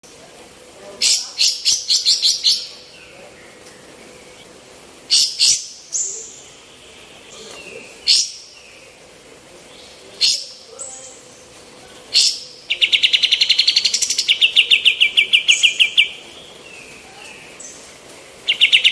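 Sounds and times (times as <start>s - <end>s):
songbird calling in sharp notes: 12.2s - 18.9s.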